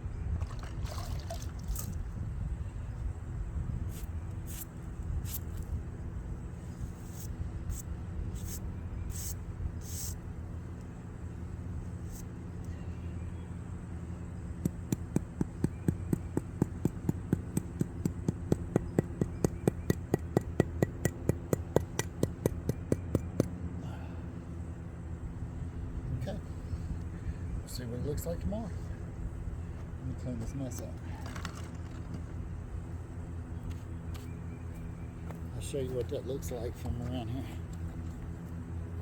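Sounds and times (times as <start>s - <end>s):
steady low hum: 0.0s - 39.0s
tool tapping on concrete: 14.6s - 23.6s.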